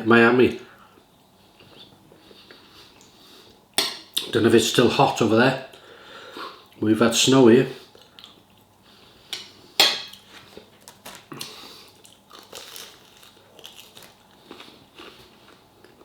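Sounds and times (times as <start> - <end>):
chewing and crunching: 10.1 - 16.0.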